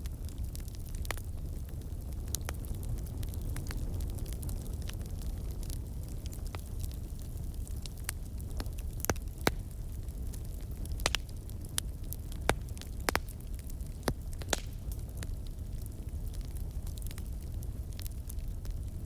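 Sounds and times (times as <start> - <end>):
fire popping and crackling: 0.0 - 19.0
low rumble of flames: 0.0 - 19.0.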